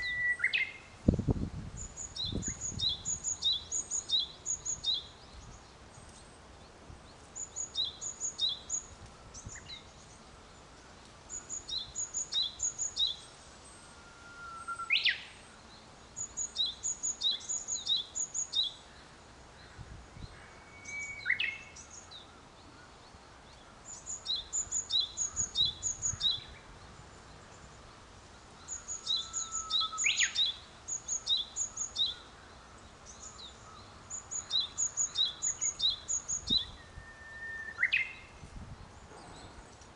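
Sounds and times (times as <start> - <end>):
bird call sweeping upward: 13.8 - 15.4, 20.4 - 22.1, 28.7 - 32.3, 34.4 - 38.3.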